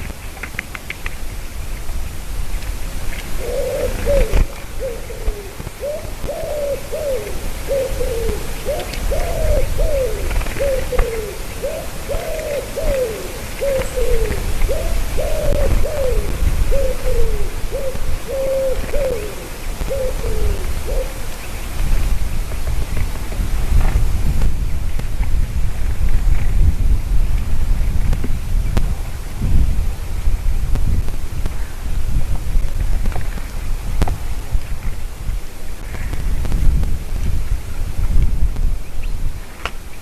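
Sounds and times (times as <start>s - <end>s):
bird calling falling notes: 3.1s - 21.7s.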